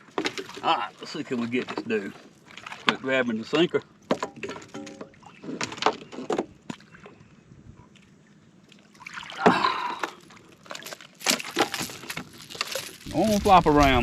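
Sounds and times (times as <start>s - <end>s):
fish flopping and knocking: 0.1s - 0.7s, 10.0s - 14.0s
wet splashy rustle: 8.7s - 14.0s.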